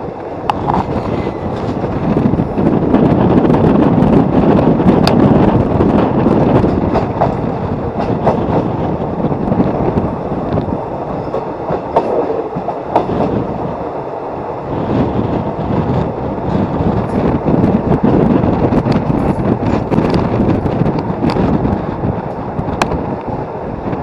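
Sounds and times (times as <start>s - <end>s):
wheels clicking over rail joints: 0.0s - 14.0s
steel wheels rumbling on rails: 0.0s - 24.0s.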